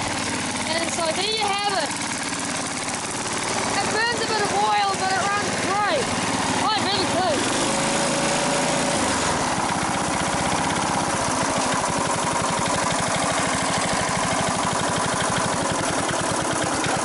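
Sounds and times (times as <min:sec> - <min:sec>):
lawn mower engine running: 0:00.0 - 0:17.0.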